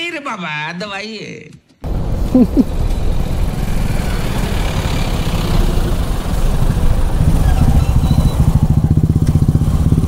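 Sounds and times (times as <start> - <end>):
motorcycle engine idling: 3.3 - 10.0.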